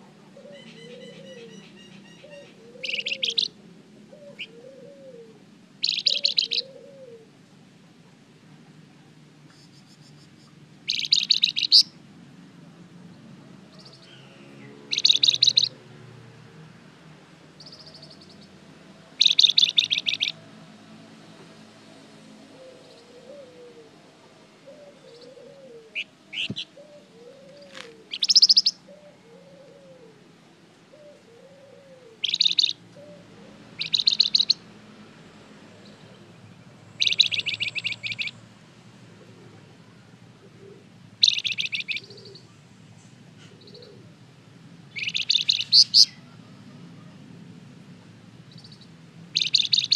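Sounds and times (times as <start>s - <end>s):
songbird singing trilled phrases: 0.6s - 3.6s, 5.8s - 6.8s, 9.6s - 12.0s, 13.8s - 15.8s, 17.6s - 18.6s, 19.2s - 20.4s, 26.0s - 28.9s, 32.2s - 32.8s, 33.8s - 34.6s, 36.9s - 38.4s, 41.2s - 42.6s, 44.9s - 46.3s, 48.5s - 49.9s
bird chips: 9.5s - 11.9s, 19.2s - 20.4s, 27.5s - 28.7s, 32.2s - 32.8s, 41.2s - 42.2s, 45.0s - 46.2s, 49.4s - 49.9s.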